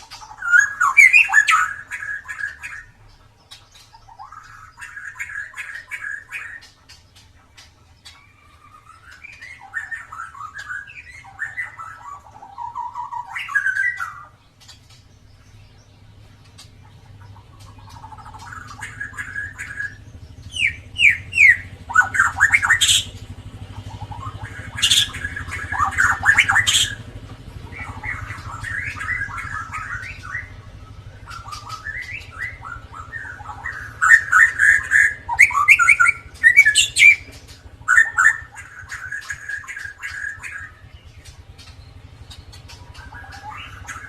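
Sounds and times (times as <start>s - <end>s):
bird singing whistles: 0.0s - 2.9s, 8.3s - 14.4s, 17.8s - 23.2s, 23.8s - 27.0s, 27.7s - 40.8s, 42.7s - 44.0s
steady low hum: 0.0s - 44.0s.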